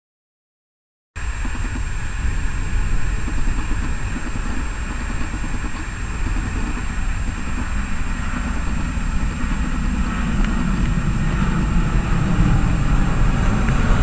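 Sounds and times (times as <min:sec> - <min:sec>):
jet engines rushing rumble: 0:01.2 - 0:14.0.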